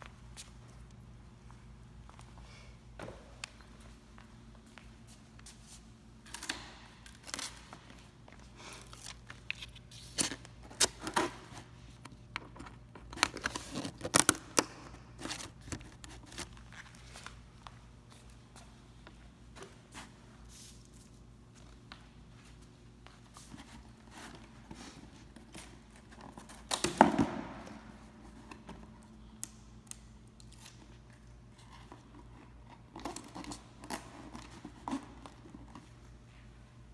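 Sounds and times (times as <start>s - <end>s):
cardboard crinkling and rustling: 12.5s - 17.4s.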